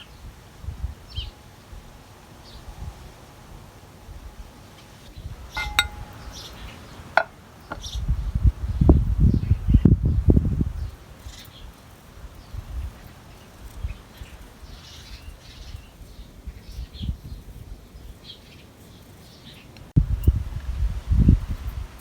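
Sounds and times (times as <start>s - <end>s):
birds chirping: 5.6s - 8.1s, 10.8s - 19.9s.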